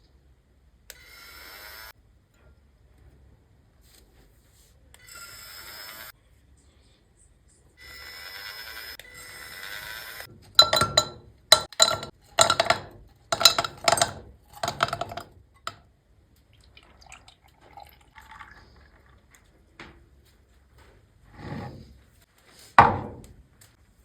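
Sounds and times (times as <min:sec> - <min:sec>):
ice cubes clinking in a glass: 0:10.6 - 0:15.3.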